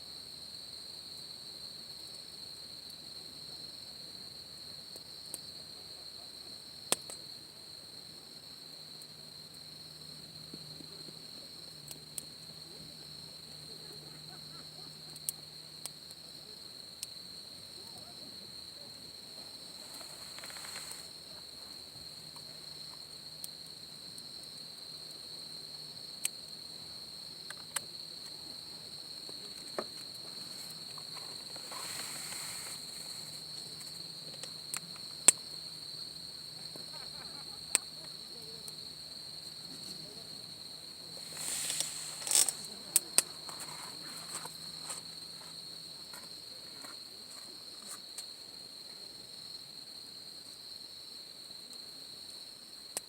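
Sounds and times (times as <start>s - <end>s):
insects chirring: 0.0s - 53.0s
campfire pops and cracks: 6.8s - 7.3s, 19.4s - 25.1s, 27.4s - 28.4s, 29.2s - 35.6s, 41.1s - 45.1s
soft rushing noise: 31.6s - 33.4s, 41.2s - 42.8s.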